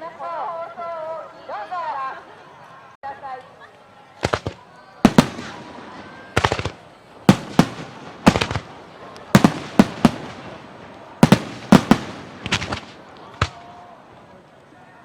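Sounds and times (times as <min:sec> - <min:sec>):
firework shells bursting: 0:04.2 - 0:13.8.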